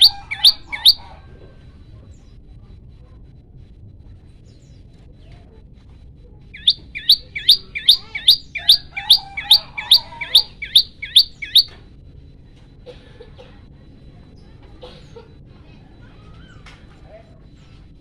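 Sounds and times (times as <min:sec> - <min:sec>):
bird calling sharp high notes: 0:00.0 - 0:01.1, 0:06.6 - 0:11.7.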